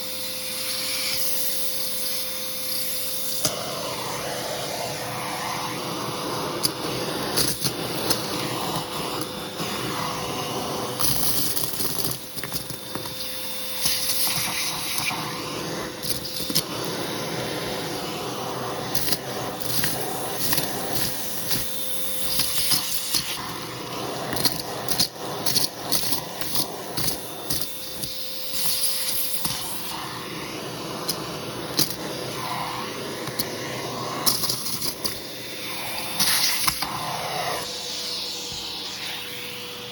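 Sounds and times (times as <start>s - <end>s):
vacuum cleaner running: 0.0s - 39.9s
debris clicking in vacuum hose: 11.0s - 15.1s, 31.8s - 32.0s.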